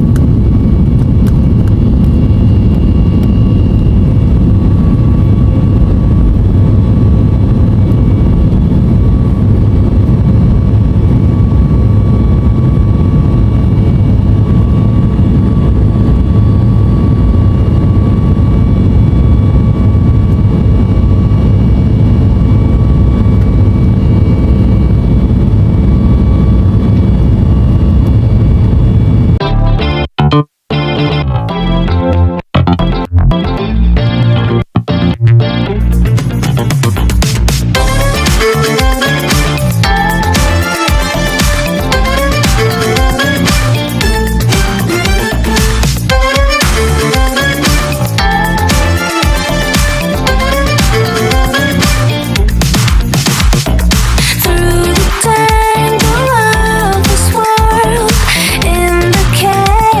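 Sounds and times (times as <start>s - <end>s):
faint whining tones: 0.0s - 29.4s
jet engines heard from cabin: 0.0s - 29.4s, 37.7s - 60.0s.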